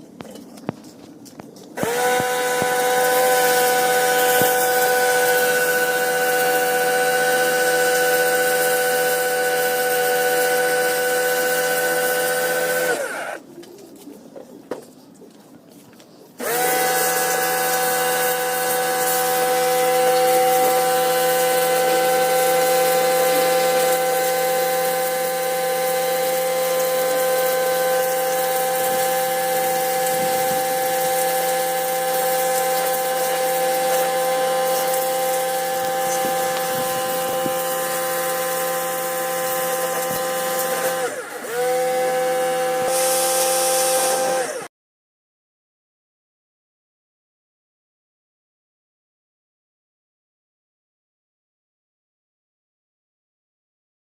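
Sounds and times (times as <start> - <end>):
power tool motor whining: 1.8 - 13.4, 16.4 - 44.7.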